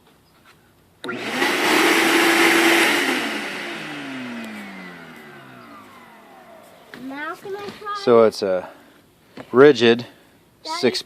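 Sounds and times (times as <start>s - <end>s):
shop vacuum running and spinning down: 1.0s - 7.4s.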